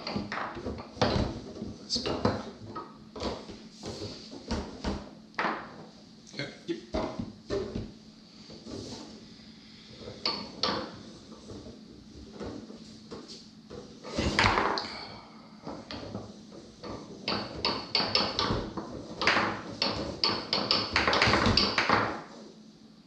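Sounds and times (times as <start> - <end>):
foosball ball clacking: 0.0 - 6.0, 6.9 - 9.2, 9.8 - 14.9, 15.6 - 22.5
foosball rods clacking: 0.0 - 6.0, 9.8 - 14.9, 15.6 - 22.6.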